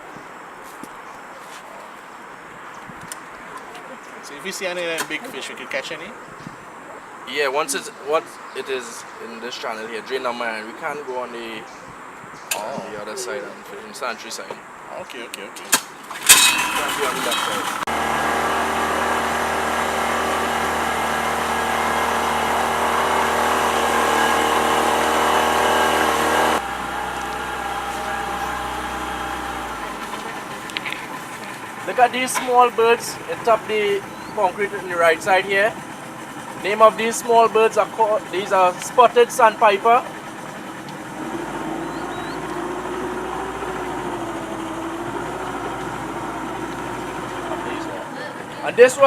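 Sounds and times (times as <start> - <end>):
boat motor running: 16.6 - 48.6.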